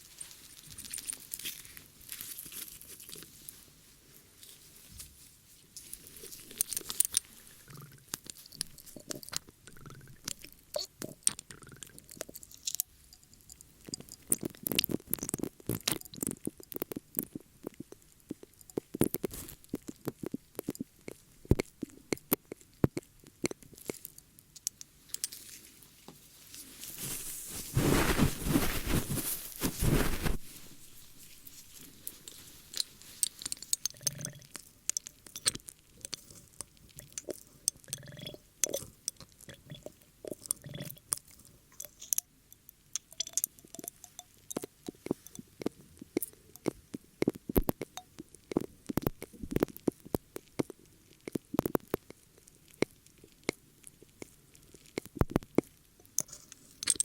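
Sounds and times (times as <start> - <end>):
ear-cleaning crackling and clicking: 5.8 - 25.5, 26.5 - 57.0
dense rubbing: 26.5 - 33.4.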